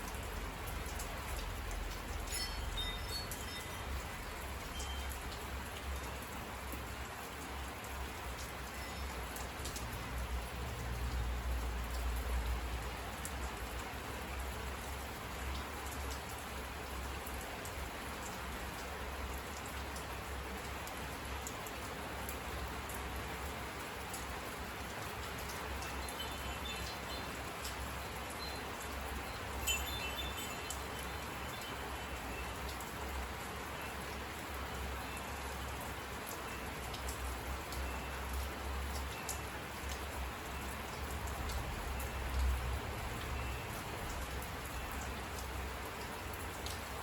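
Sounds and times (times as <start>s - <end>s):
steady rain hiss: 0.0s - 47.0s
water drip ticks: 0.0s - 47.0s.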